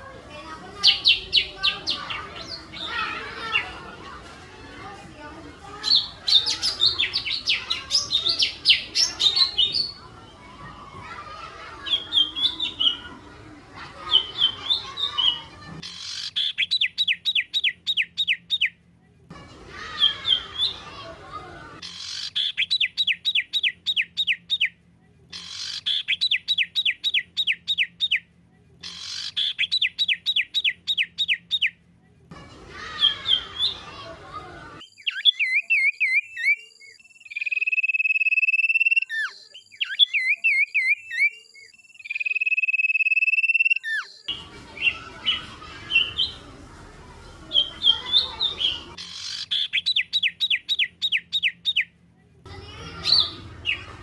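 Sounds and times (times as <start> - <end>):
songbird song: 0.6 - 4.1, 5.7 - 18.7, 19.6 - 24.7, 32.4 - 51.9, 52.5 - 54.0.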